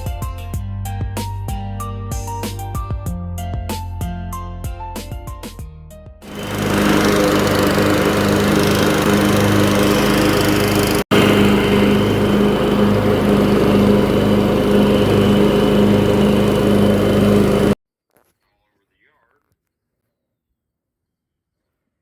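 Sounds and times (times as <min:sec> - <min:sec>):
small engine running: 0:06.2 - 0:17.8.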